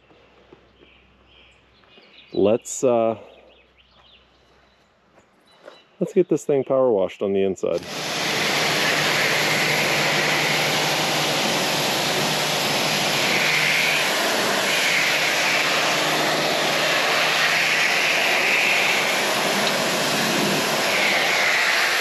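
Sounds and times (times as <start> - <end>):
faint motor hum: 7.8 - 22.0
pressure washer water jet hissing: 7.8 - 22.0.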